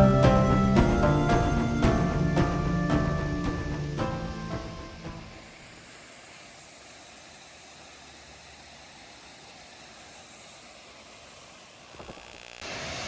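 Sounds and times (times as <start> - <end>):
faint waterfall rushing: 12.6 - 13.0.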